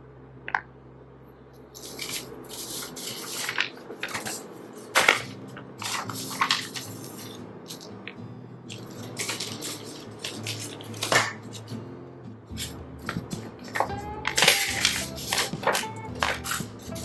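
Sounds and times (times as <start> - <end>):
plastic parts rustling and clattering: 1.8 - 7.9, 8.7 - 11.7, 12.6 - 17.0.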